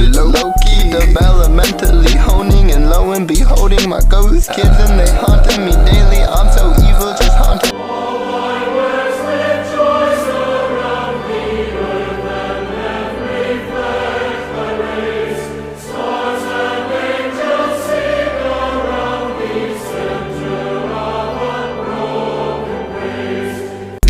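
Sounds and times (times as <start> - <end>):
lo-fi hip-hop beat: 0.0 - 7.8.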